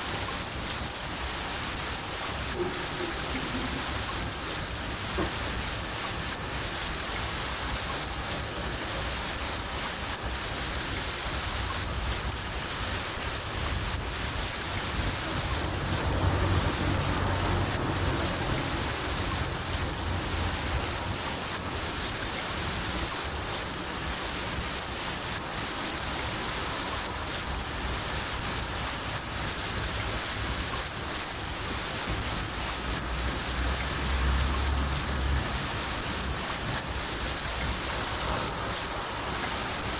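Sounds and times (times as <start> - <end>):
cricket chirping: 0.0 - 39.9
rain hissing: 0.0 - 39.9
thunder rumbling: 13.5 - 22.0.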